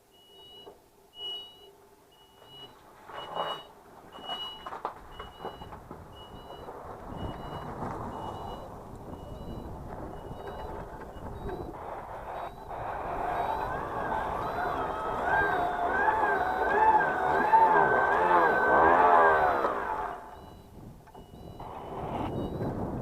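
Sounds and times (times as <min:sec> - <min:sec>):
reverse warning beeper: 0:00.2 - 0:23.0
low rumbling noise: 0:02.5 - 0:23.0.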